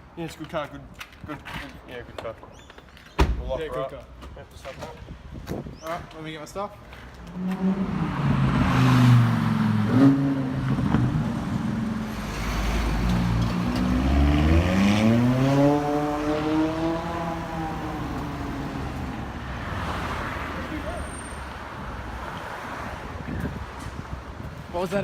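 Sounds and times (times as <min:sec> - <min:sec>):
car engine revving: 0:07.2 - 0:20.6.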